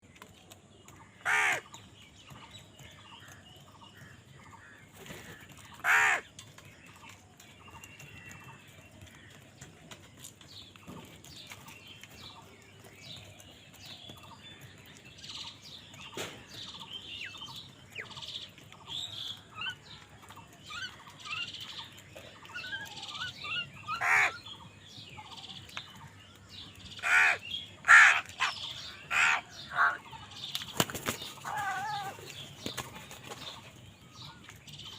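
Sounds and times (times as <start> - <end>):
small birds chirping softly: 0.0 - 34.9
crows cawing: 1.2 - 1.7, 5.4 - 6.3, 23.9 - 24.5, 27.0 - 30.0, 31.4 - 32.2.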